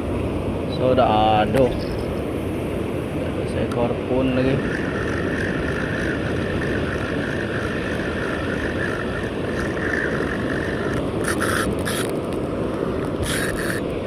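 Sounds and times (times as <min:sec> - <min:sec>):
boat rumble and hiss: 0:00.0 - 0:14.0
steady whine: 0:00.0 - 0:14.0
wind on microphone: 0:00.0 - 0:14.0
harsh hiss bursts: 0:13.2 - 0:13.8.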